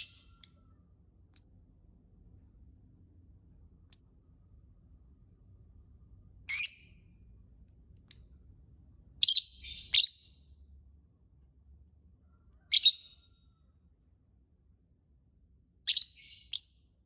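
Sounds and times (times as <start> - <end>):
lovebird chirping: 0.0 - 0.8, 6.5 - 6.9, 9.2 - 10.3, 12.7 - 13.2, 15.9 - 16.8.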